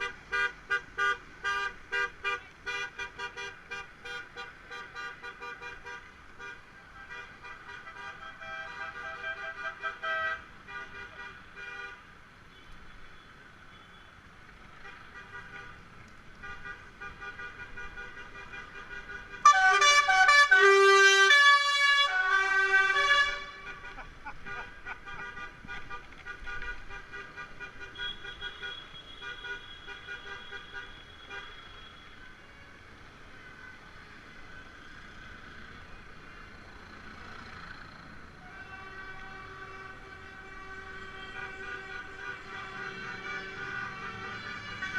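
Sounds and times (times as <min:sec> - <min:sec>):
vehicle horns honking: 0:00.0 - 0:15.8, 0:16.4 - 0:32.8, 0:38.4 - 0:44.9.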